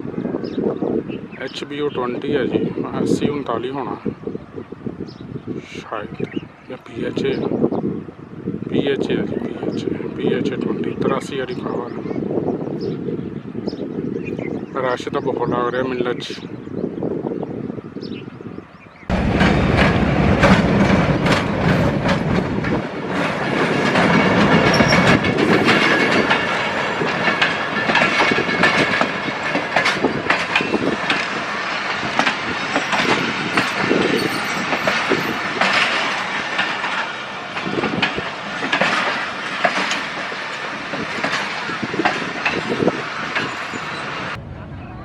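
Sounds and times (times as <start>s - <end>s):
train passing at speed: 19.0s - 45.0s
wheels clattering over rail joints: 19.1s - 44.4s.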